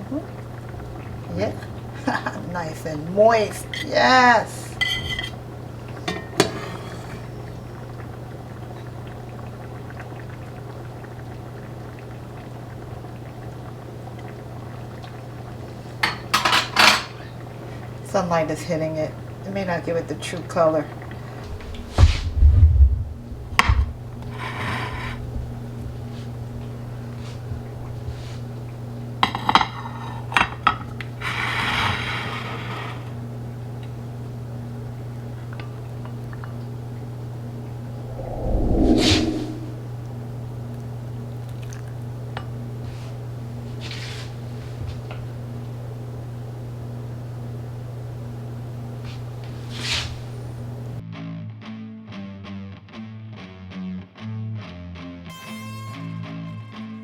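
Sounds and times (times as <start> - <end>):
pot bubbling: 0.1 - 16.4
metal utensils clinking on dishes: 4.8 - 5.4
steady low hum: 21.0 - 24.4, 37.9 - 40.1
low hum: 37.9 - 40.0
scraping noise: 38.0 - 39.9.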